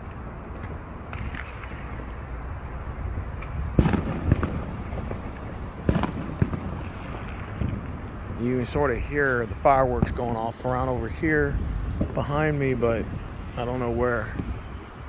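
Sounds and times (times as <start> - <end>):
fireworks bangs and pops: 0.0 - 15.0
low background rumble: 0.0 - 15.0.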